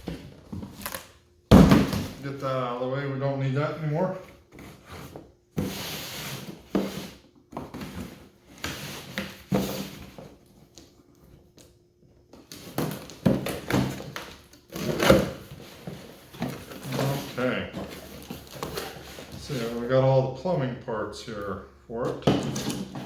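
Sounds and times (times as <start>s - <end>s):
cardboard rustling: 12.4s - 20.0s.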